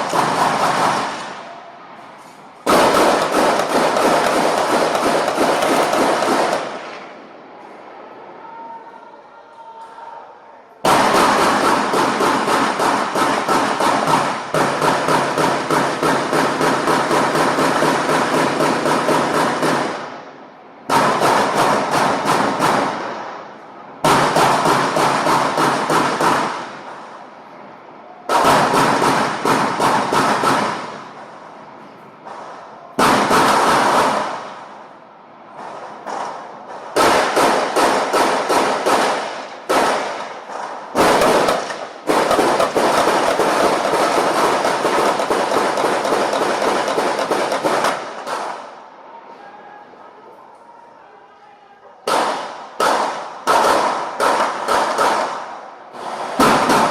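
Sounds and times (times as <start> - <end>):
rapid crackling pops: 35.6 - 48.7.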